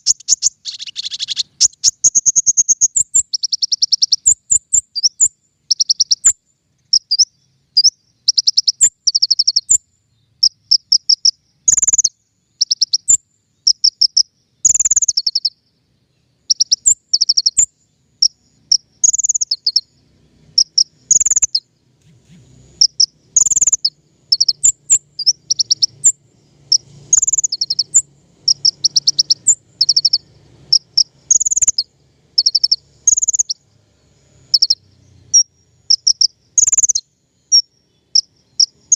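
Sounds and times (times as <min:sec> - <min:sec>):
songbird trilling: 0:00.0 - 0:33.6, 0:34.4 - 0:38.9.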